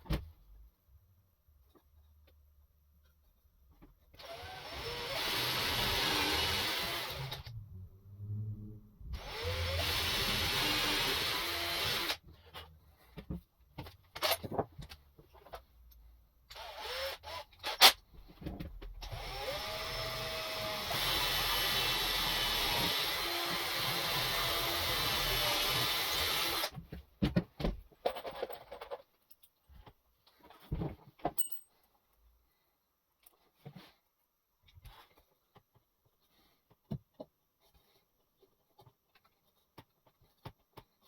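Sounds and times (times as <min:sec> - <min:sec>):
power drill running: 0:04.2 - 0:07.5, 0:09.2 - 0:12.2, 0:16.5 - 0:17.8, 0:19.0 - 0:26.7
knocks and clicks of tool handling: 0:26.7 - 0:31.6.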